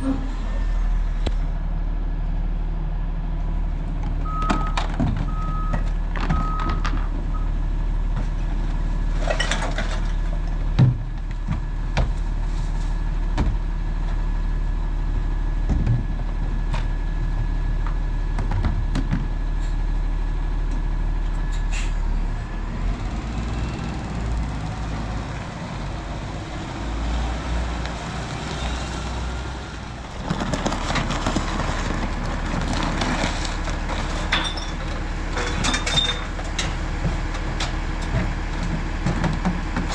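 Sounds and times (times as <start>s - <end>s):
garbage truck engine humming: 0.0s - 39.9s
clatter and rumble: 3.0s - 39.9s
reversing beeps: 4.2s - 7.6s.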